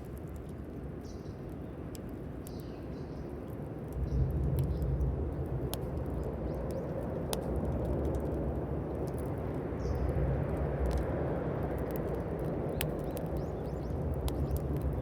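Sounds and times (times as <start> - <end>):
campfire crackling and popping: 0.0 - 15.0
low rumble: 3.9 - 12.5.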